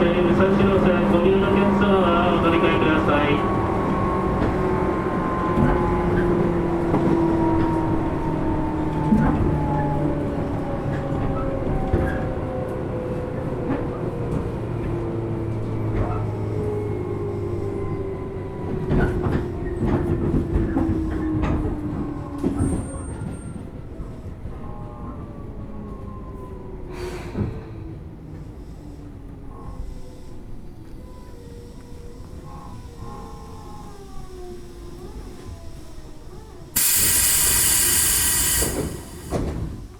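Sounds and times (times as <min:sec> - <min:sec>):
train motor whine: 0:31.6 - 0:39.9.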